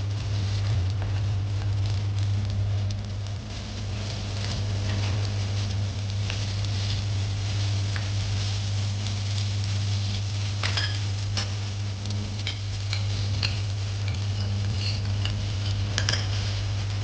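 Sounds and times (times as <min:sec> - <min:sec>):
noodles sizzling in a pan: 0:00.0 - 0:17.0
steady low hum: 0:00.0 - 0:17.0.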